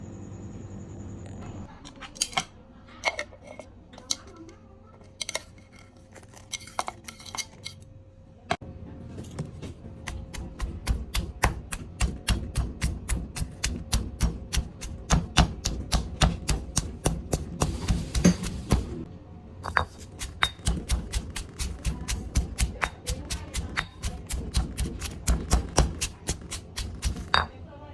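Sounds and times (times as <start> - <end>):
kitchen utensils clinking: 1.8 - 7.8, 16.2 - 19.0, 19.6 - 27.6
pestle pounding in mortar: 10.0 - 19.0, 19.7 - 27.5.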